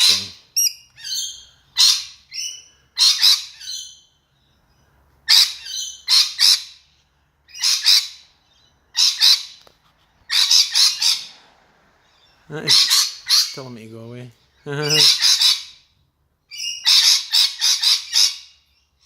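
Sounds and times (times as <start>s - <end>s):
lorikeet screeching: 0.0s - 4.2s, 5.3s - 6.9s, 7.5s - 9.6s, 10.3s - 11.4s, 12.1s - 13.8s, 14.8s - 15.9s, 16.5s - 19.0s.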